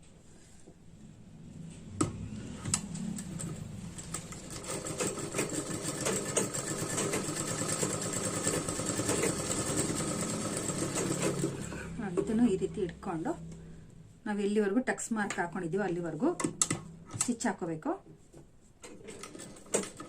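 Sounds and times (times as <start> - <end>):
sewing machine running: 3.2 - 12.0.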